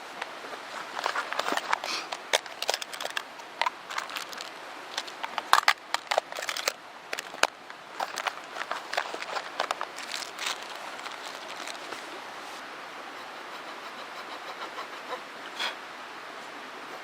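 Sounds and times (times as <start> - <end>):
steady background hiss: 0.0 - 17.0
dry wood snapping and crackling: 0.2 - 12.0.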